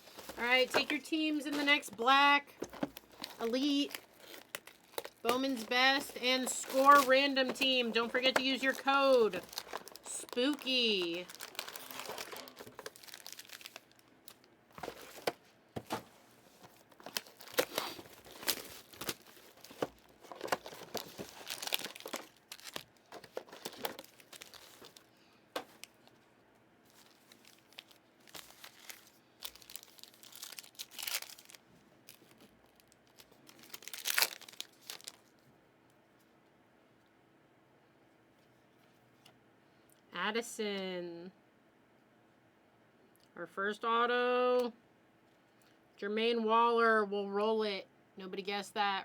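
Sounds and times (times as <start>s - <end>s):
wrappers tearing and crinkling: 2.6s - 15.3s, 16.7s - 25.1s, 26.9s - 35.4s.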